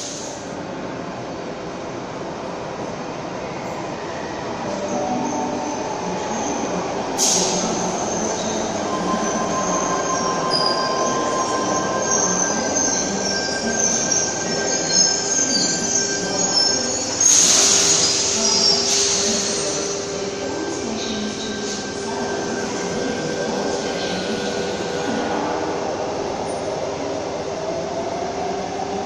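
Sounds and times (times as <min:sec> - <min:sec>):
air brake hiss: 0:00.0 - 0:00.4, 0:07.2 - 0:07.8, 0:17.2 - 0:20.0
train running noise: 0:03.2 - 0:29.0
train wheels squealing: 0:07.2 - 0:20.1.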